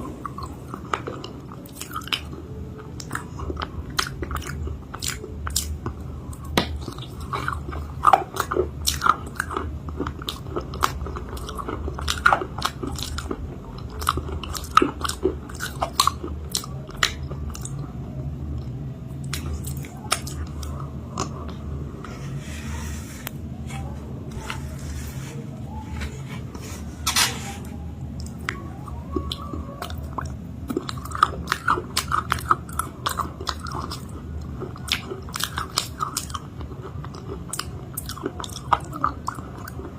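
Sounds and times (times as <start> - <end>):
crunchy biting and chewing: 3.0 - 17.8, 27.7 - 39.9.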